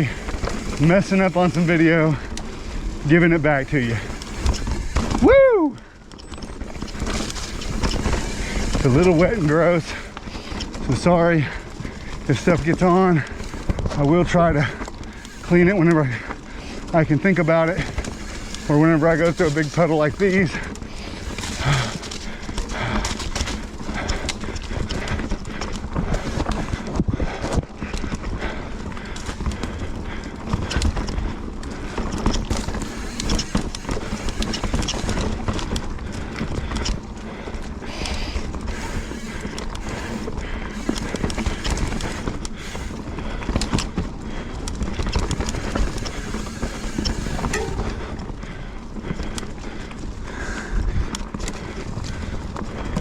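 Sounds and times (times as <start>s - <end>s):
bike rattling: 0.0s - 53.0s
wheels knocking over roots: 0.0s - 53.0s.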